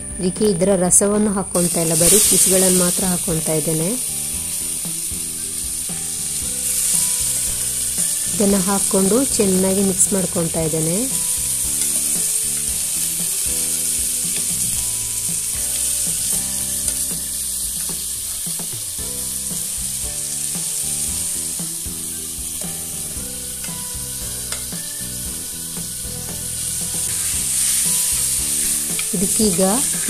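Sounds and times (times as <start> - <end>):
food sizzling in a pot: 0.0 - 30.0.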